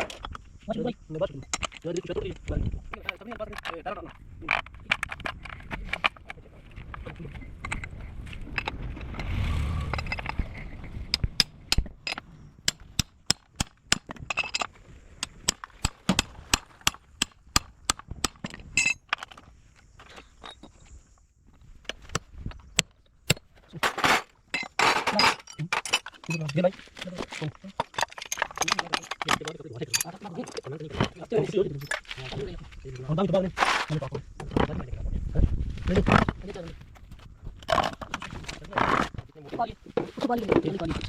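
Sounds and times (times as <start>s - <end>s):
low rumble: 6.6s - 12.7s.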